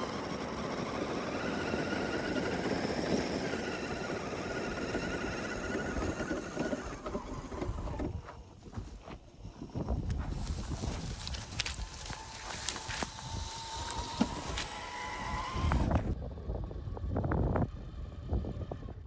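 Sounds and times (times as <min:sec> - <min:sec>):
toy car motor whining: 0:00.0 - 0:08.2, 0:09.3 - 0:19.0
tyres crunching on rough ground: 0:04.2 - 0:16.2.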